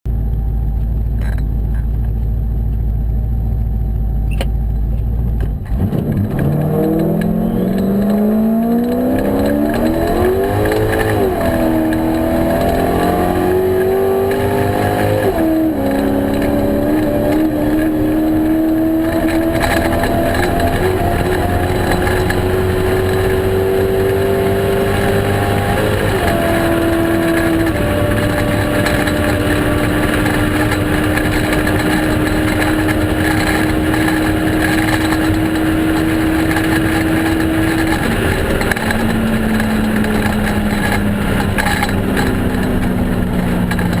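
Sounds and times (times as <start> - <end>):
truck engine accelerating: 0.1 - 44.0.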